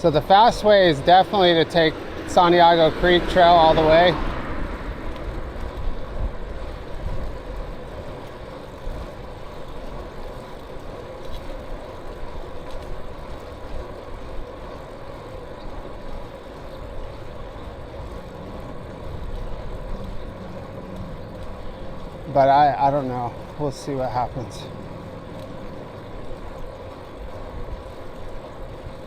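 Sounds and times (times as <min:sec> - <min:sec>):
motor vehicle traffic: 0:00.0 - 0:12.0, 0:14.9 - 0:29.0
road noise from bicycle: 0:00.0 - 0:29.0
wind noise on microphone: 0:00.0 - 0:29.0.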